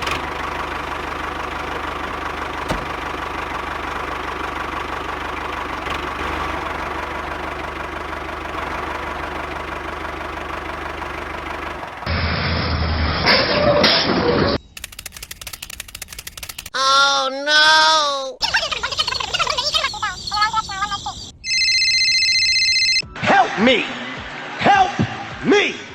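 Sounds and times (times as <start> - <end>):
small engine running: 0.0 - 12.2.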